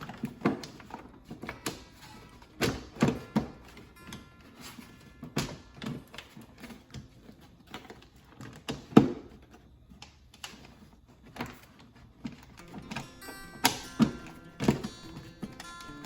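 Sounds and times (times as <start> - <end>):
plastic clicks and knocks: 0.0 - 4.3, 5.2 - 16.0.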